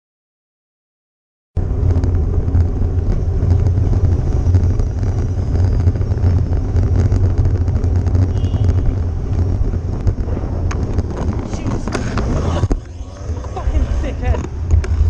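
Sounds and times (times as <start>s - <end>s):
car driving road and engine noise: 1.6s - 15.0s.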